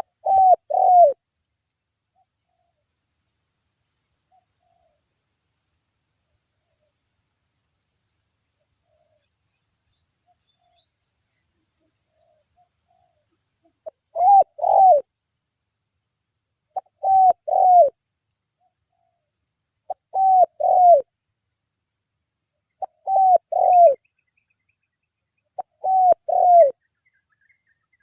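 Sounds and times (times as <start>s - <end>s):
dove cooing: 0.0s - 1.2s, 12.1s - 15.1s, 16.8s - 18.0s, 19.9s - 21.1s, 22.8s - 24.1s, 25.6s - 26.8s.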